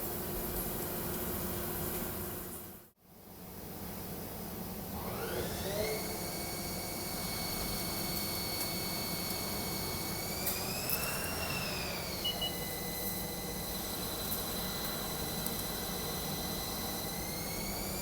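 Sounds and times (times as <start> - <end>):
lathe spindle whining: 5.0 - 18.0.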